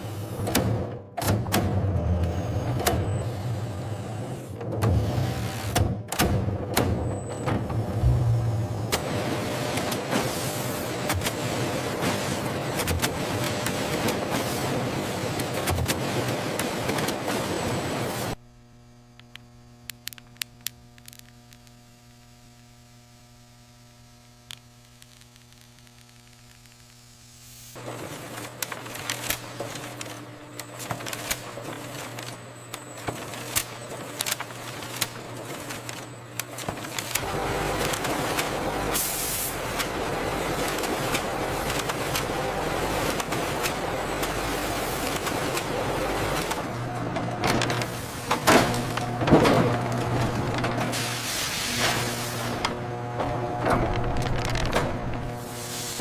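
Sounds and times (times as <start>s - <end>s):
steady electrical hum: 17.5s - 56.0s
hissing machine noise with ticks: 23.8s - 46.7s.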